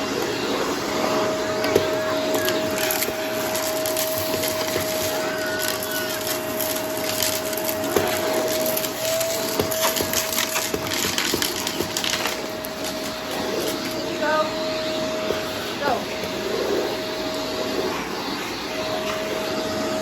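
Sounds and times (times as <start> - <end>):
vacuum cleaner motor: 0.0 - 20.0
debris crackling and crunching: 1.2 - 16.4.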